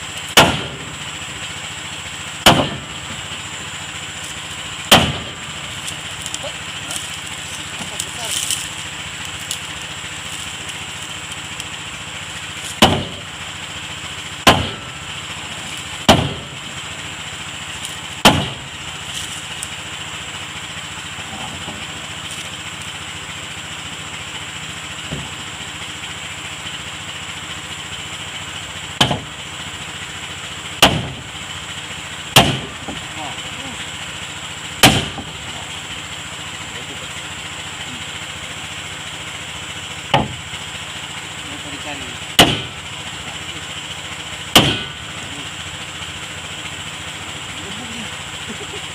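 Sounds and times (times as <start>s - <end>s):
steady motor hum: 0.0s - 48.9s
hammer striking wood: 0.4s - 0.8s, 2.4s - 2.8s, 4.9s - 5.3s, 12.8s - 13.2s, 14.4s - 14.8s, 16.1s - 16.5s, 18.2s - 18.6s, 29.0s - 29.3s, 30.8s - 31.2s, 32.4s - 33.0s, 34.8s - 35.3s, 40.1s - 40.4s, 42.4s - 42.7s, 44.5s - 44.9s.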